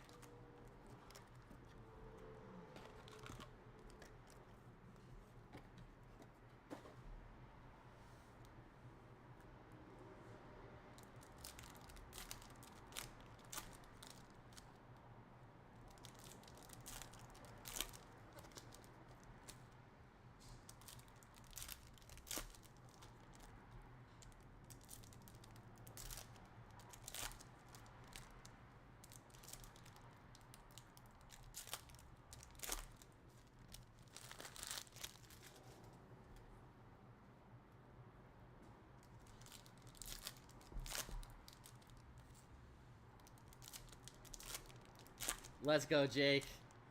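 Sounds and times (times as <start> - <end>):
foil wrappers tearing and crinkling: 11.1 - 14.3, 15.9 - 19.6, 20.7 - 23.5, 24.7 - 28.4, 29.0 - 35.8, 39.3 - 42.0, 43.2 - 45.6.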